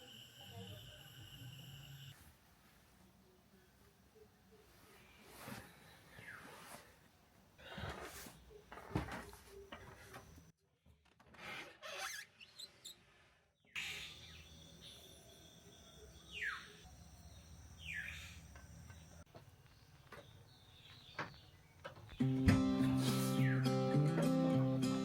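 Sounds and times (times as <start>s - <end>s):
low background noise: 0.0s - 10.6s.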